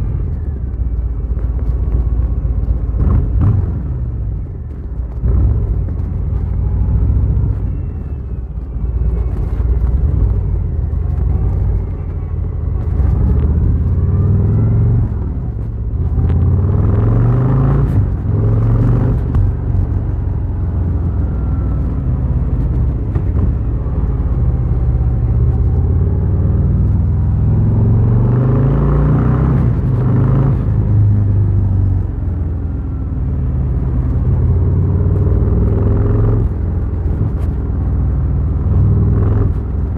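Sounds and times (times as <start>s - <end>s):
wind noise: 0.0s - 39.9s
motorcycle engine accelerating: 9.0s - 39.9s.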